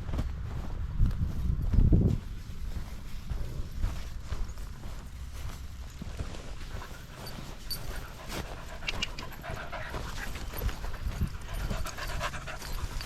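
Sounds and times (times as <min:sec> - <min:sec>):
light clicks and rustles: 0:05.9 - 0:13.0
dog panting: 0:06.5 - 0:13.0.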